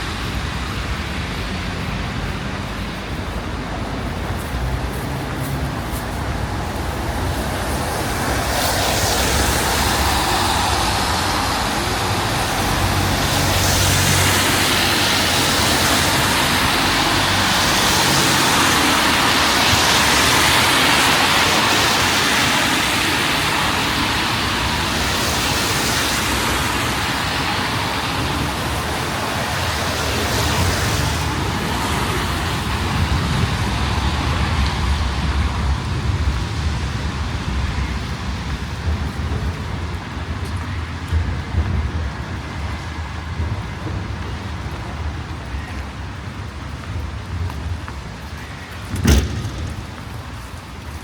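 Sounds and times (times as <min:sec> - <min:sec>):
rain hissing: 0:00.0 - 0:48.3
car tyres on wet street: 0:00.0 - 0:51.0.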